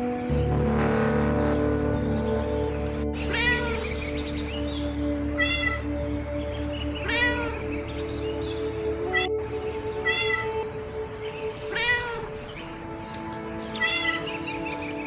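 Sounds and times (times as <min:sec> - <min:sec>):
soft background music: 0:00.0 - 0:15.0
cat meowing: 0:03.3 - 0:03.8, 0:05.4 - 0:05.8, 0:07.0 - 0:07.6, 0:10.0 - 0:10.5, 0:11.7 - 0:12.6, 0:13.8 - 0:14.3.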